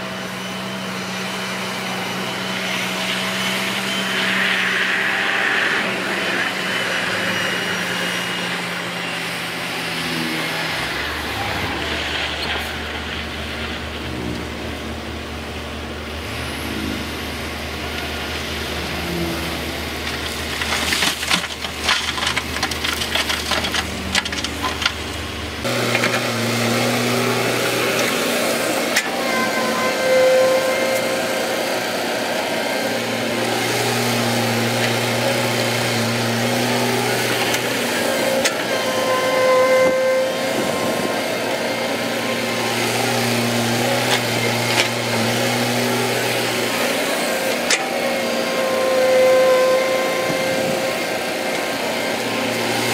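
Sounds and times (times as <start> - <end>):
diesel engine humming: 0.0 - 52.9
engine working under load: 0.0 - 52.9.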